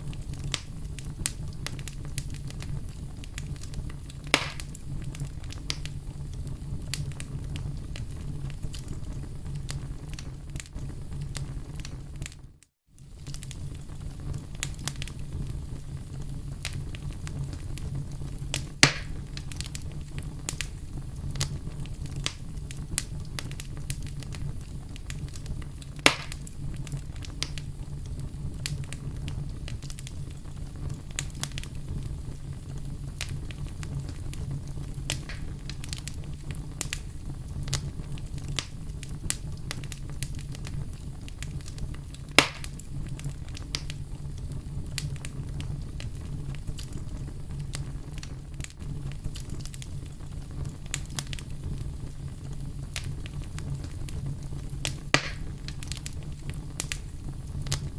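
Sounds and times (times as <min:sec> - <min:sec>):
wood fire crackling: 0:00.0 - 0:57.9
loud sharp pops: 0:04.3 - 0:04.8, 0:18.8 - 0:19.2, 0:26.0 - 0:26.5, 0:35.1 - 0:35.5, 0:42.4 - 0:42.8, 0:55.1 - 0:55.8.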